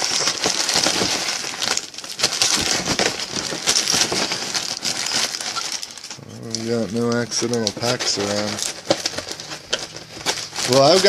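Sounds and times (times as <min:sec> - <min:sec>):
foil wrappers crinkling: 0:00.0 - 0:11.0.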